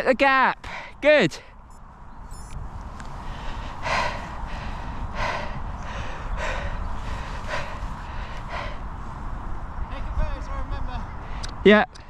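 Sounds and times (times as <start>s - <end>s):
person breathing heavily: 0.6s - 1.6s, 3.2s - 9.2s.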